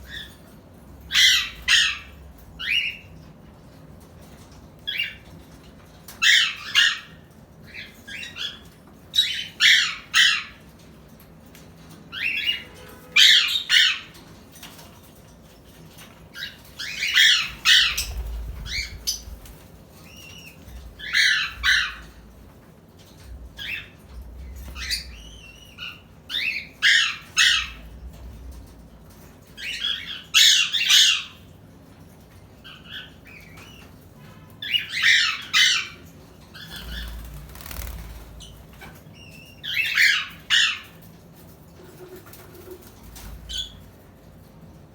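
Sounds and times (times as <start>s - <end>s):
birds squawking: 16.4s - 22.4s, 34.6s - 41.1s
wings flapping: 17.3s - 19.8s, 36.6s - 39.0s.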